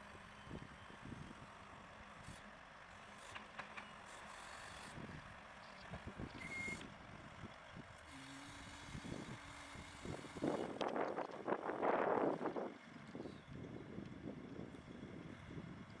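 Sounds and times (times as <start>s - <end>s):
distant heavy machinery noise: 2.2s - 13.1s.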